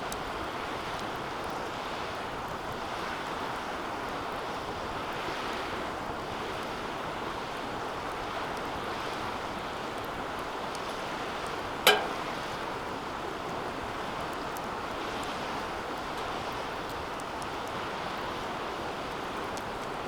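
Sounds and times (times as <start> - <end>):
wood fire hissing and crackling: 0.0 - 11.5, 13.3 - 20.0
metallic ping of fire pit: 11.9 - 12.6.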